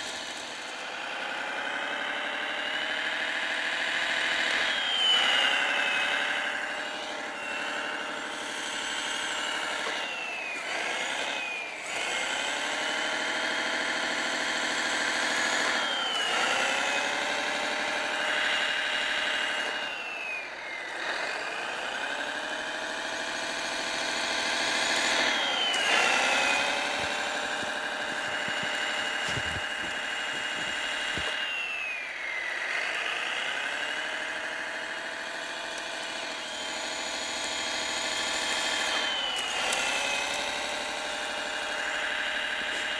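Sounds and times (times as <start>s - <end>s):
model engine sound: 0.0s - 42.9s
high whine: 24.3s - 34.2s.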